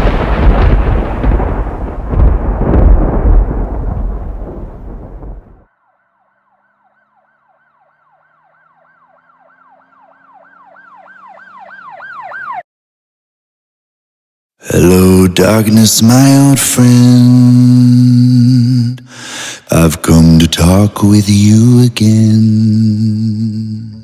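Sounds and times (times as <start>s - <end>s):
loud rumble: 0.0s - 5.7s
siren yelping: 5.7s - 12.7s.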